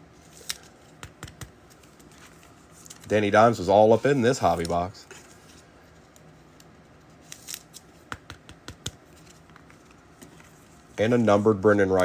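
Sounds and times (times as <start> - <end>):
clicks and snips handling cards: 0.3 - 3.1, 4.5 - 10.6.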